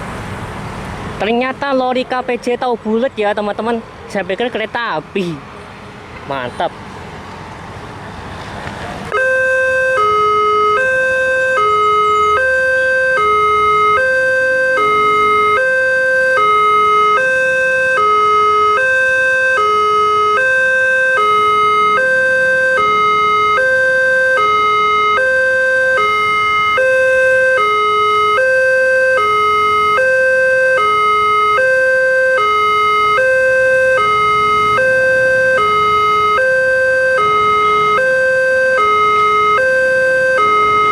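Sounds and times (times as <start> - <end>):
level crossing two-tone alarm: 9.1 - 40.9.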